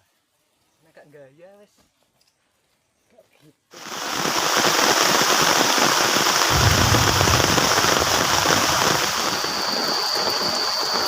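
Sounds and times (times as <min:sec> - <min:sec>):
heavy rain: 0:04.0 - 0:09.8
low rumble: 0:06.5 - 0:09.4.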